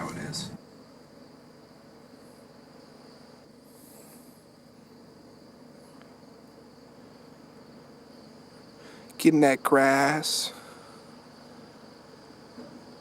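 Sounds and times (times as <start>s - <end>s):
insects droning: 0.0s - 13.0s
faint high hisses: 2.2s - 4.6s.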